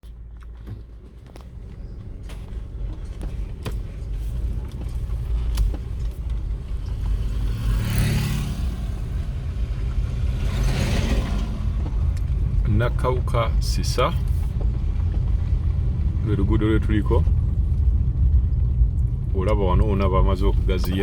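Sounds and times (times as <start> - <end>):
vehicle driving on a road: 0.0 - 21.0
rushing swells: 6.7 - 14.5.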